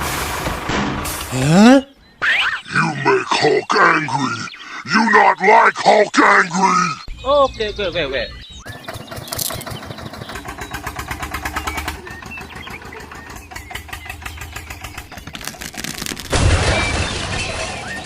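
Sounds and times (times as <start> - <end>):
small engine chugging: 8.6 - 16.1.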